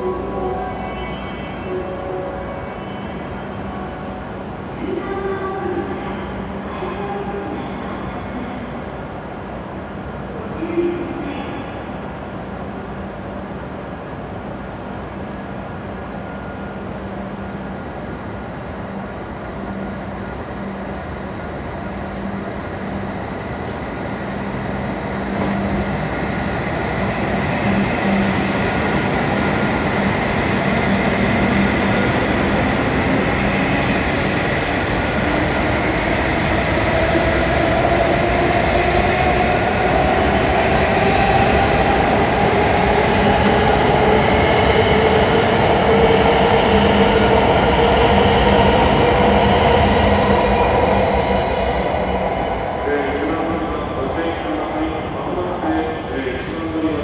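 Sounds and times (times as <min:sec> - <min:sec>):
train low hum: 0:00.0 - 0:57.0
train running noise: 0:15.8 - 0:57.0.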